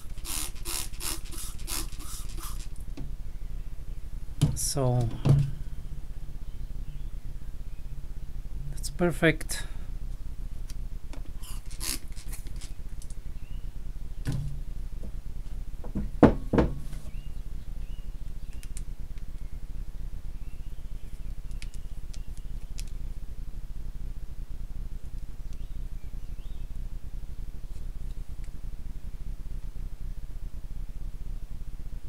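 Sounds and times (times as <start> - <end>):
steady low hum: 0.0 - 32.0
faint bird chirps: 13.2 - 13.8, 25.4 - 26.8
knocks on workbench: 15.8 - 16.9.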